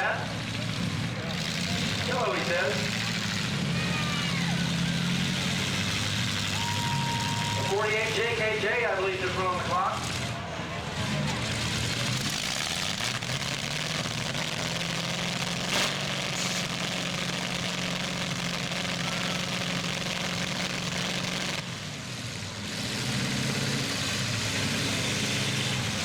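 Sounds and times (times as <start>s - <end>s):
truck engines droning: 0.0s - 26.0s
sharp crack: 12.6s - 21.6s.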